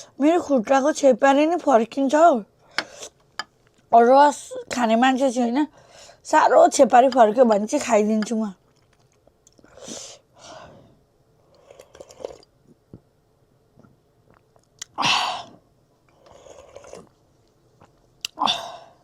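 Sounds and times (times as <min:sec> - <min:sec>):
soft mouth noises: 0:13.7 - 0:18.6
person chewing food: 0:16.0 - 0:18.4.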